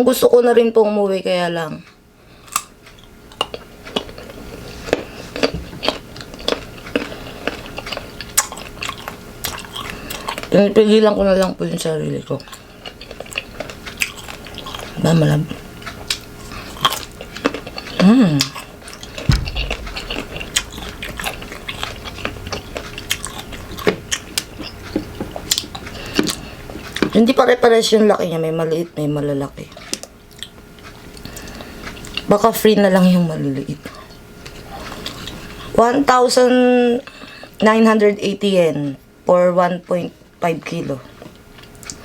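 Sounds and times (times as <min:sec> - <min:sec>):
crunchy chewing of mango: 0:01.9 - 0:10.6, 0:12.3 - 0:27.3, 0:29.6 - 0:32.4, 0:33.9 - 0:35.8, 0:41.1 - 0:42.0
low thump: 0:19.3 - 0:21.4.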